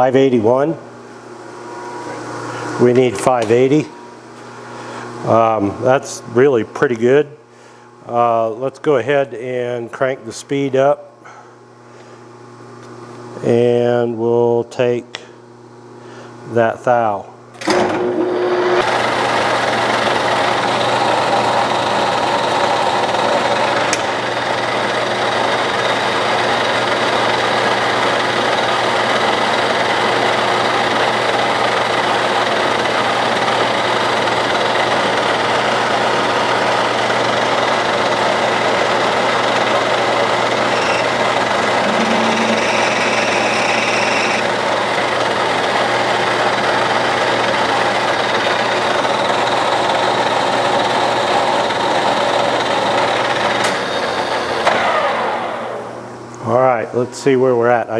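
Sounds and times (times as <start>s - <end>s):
metal lathe running: 17.8s - 56.0s.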